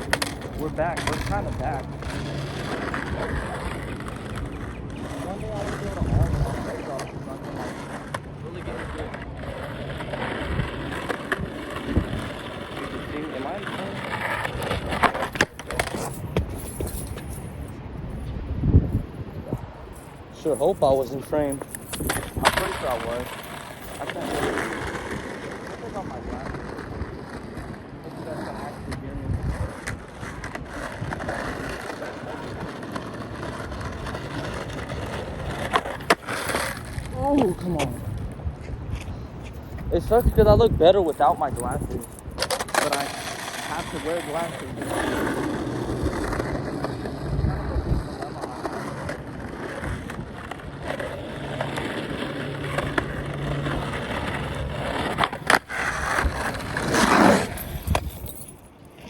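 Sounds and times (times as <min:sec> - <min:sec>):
skateboard clacks: 0:00.0 - 0:17.3, 0:21.2 - 0:59.0
wind on microphone: 0:00.0 - 0:36.1, 0:36.7 - 0:58.6
skateboard wheels rolling on pavement: 0:00.0 - 0:59.0.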